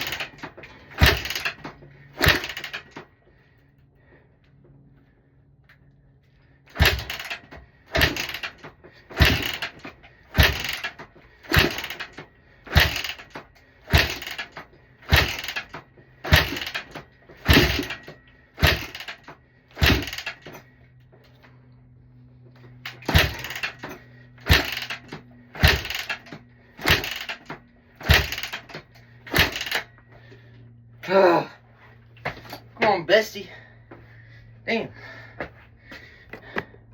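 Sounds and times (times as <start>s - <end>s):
dirt bike kick-start: 0.0s - 3.1s, 6.7s - 21.6s, 22.6s - 30.4s.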